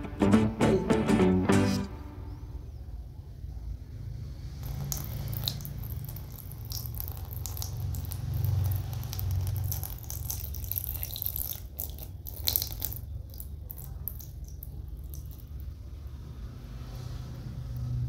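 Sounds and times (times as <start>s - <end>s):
water trickling into plastic tray: 4.6s - 15.7s.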